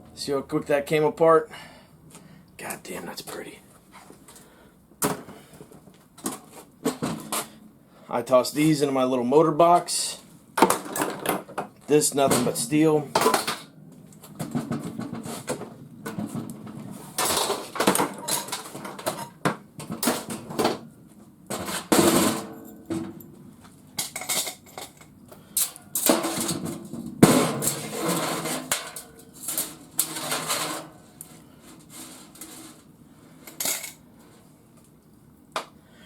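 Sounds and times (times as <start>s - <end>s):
metal parts clanking and knocking: 17.2s - 20.8s, 24.0s - 32.8s, 33.5s - 34.0s.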